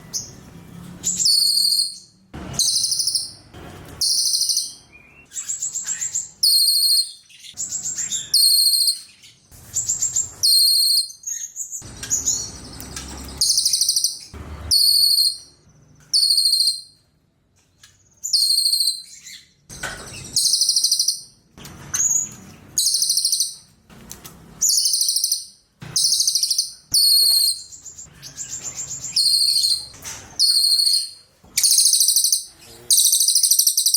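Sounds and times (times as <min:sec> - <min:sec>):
songbird chirping rapidly: 0:00.0 - 0:09.4, 0:10.0 - 0:17.0, 0:24.6 - 0:33.9.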